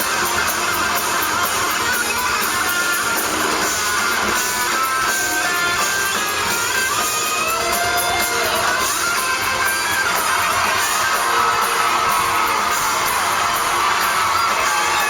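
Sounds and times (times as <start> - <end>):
electric guitar lead bending notes: 0.0 - 15.0
rock band playing loudly: 0.0 - 15.0.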